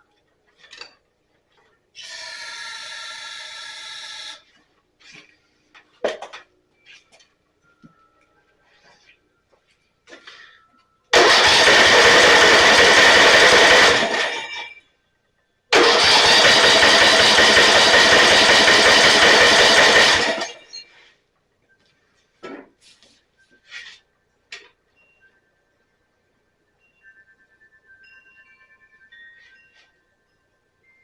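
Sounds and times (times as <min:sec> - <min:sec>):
starter cranking engine: 0:11.2 - 0:14.6, 0:15.7 - 0:20.8.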